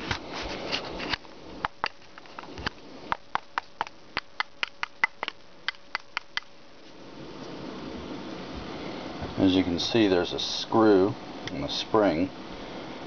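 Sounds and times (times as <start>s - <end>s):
sharp metallic clicks and taps: 3.1s - 6.5s.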